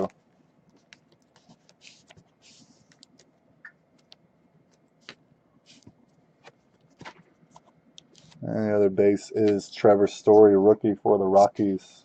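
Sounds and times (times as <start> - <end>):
hands rustling at a desk: 0.0 - 8.4.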